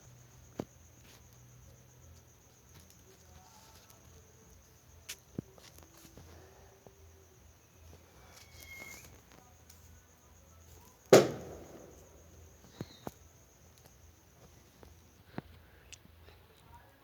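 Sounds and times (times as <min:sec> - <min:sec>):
firecracker bang: 0:11.0 - 0:12.9.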